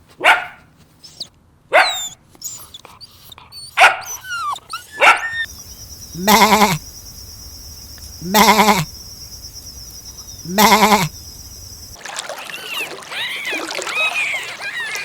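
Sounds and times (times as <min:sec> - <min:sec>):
young birds peeping: 0:04.2 - 0:12.0
goat bleating: 0:06.2 - 0:06.8, 0:08.2 - 0:09.0, 0:10.4 - 0:11.2.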